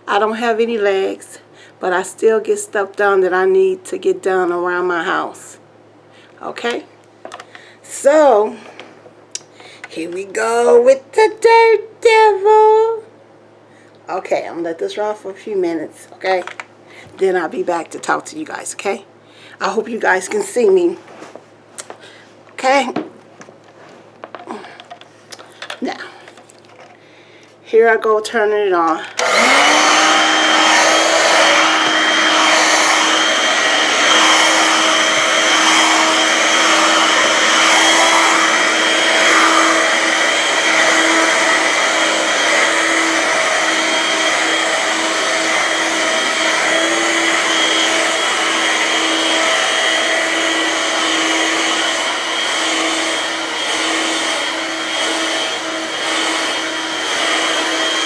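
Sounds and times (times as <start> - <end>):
vacuum cleaner motor whining: 29.0 - 58.0.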